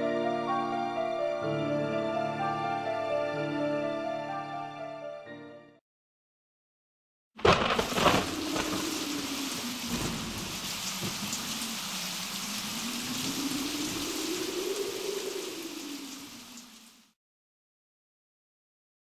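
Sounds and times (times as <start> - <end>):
heavy rain: 7.4 - 17.2
low tone dipping and rising: 8.3 - 17.1.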